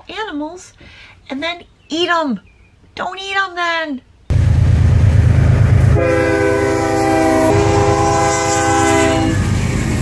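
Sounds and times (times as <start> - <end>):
diesel locomotive engine rumble: 4.3 - 10.0
train air horn chord: 5.9 - 9.5.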